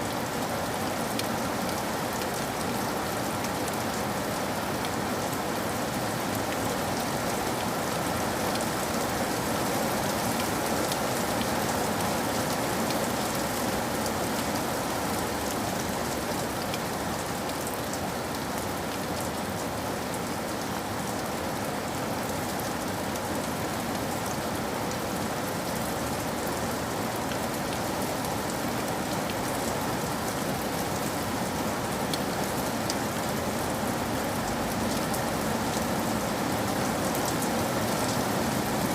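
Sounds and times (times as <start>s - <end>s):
rain hiss: 0.0s - 38.9s.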